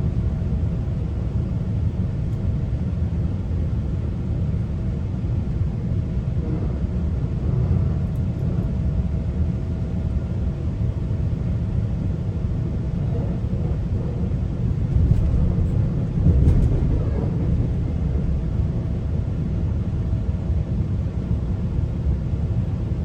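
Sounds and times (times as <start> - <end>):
train wheels rumbling on track: 5.2 - 22.7.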